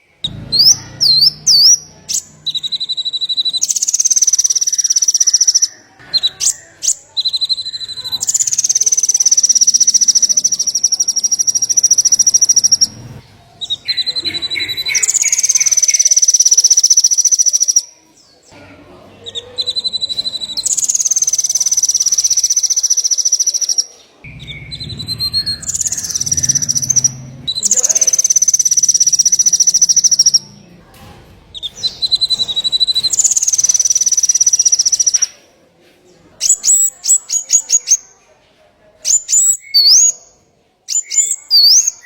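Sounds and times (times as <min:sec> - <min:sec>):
quick bird chirps: 0:00.0 - 0:05.7, 0:06.4 - 0:17.8, 0:19.8 - 0:30.7
songbird buzzy trills: 0:00.0 - 0:05.8, 0:06.4 - 0:17.9, 0:19.8 - 0:30.9, 0:31.5 - 0:35.2.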